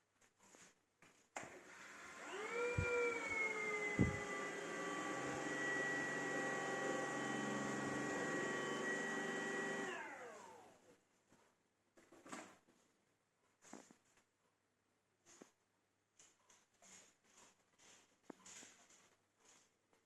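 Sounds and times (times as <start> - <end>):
electric motor whine: 1.9 - 10.8.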